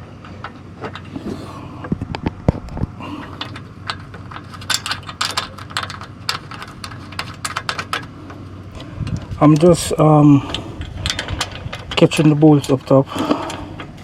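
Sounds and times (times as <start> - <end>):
hand ratchet clicking on bolts: 9.0 - 13.9.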